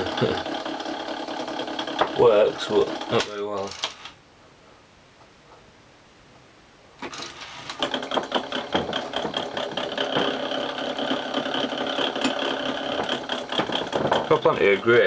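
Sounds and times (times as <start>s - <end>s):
tape deck mechanism whirring: 0.0s - 4.1s, 7.0s - 15.0s
rapid clicking knocks: 0.4s - 2.3s, 7.0s - 15.0s.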